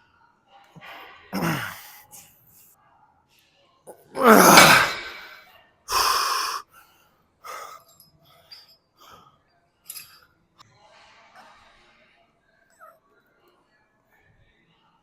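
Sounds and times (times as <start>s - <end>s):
person breathing heavily: 5.9s - 6.8s.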